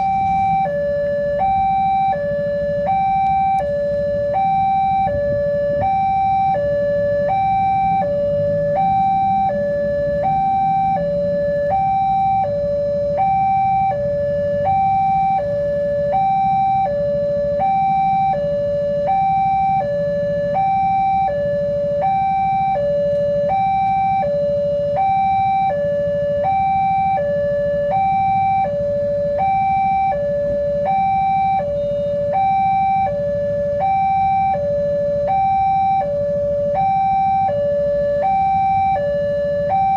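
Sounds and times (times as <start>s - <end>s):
level crossing two-tone alarm: 0.0s - 39.9s.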